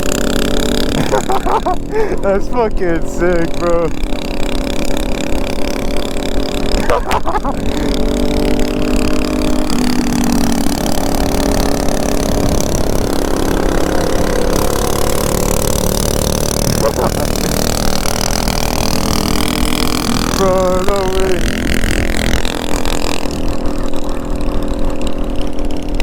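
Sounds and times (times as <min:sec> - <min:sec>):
motorcycle engines cruising: 0:00.0 - 0:26.0
wind rushing on microphone: 0:12.2 - 0:13.1.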